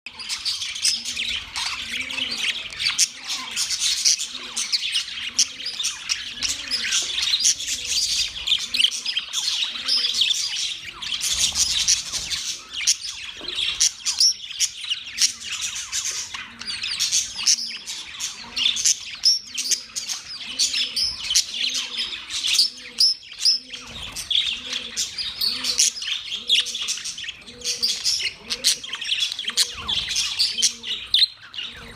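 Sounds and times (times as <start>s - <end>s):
budgerigars chattering and chirping: 0.1s - 31.9s.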